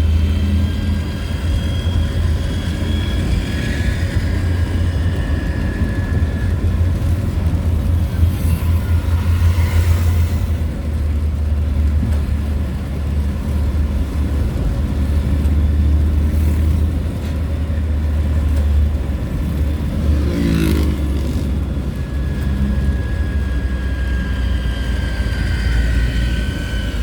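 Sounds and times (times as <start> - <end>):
vehicle engine and road rumble: 0.0 - 27.0
vehicle passing: 19.3 - 23.4.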